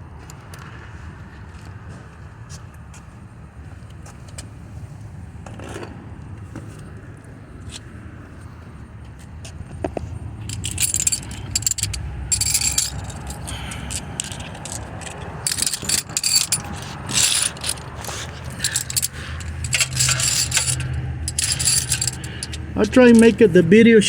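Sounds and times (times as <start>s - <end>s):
metal hand tools clinking: 10.4s - 23.4s.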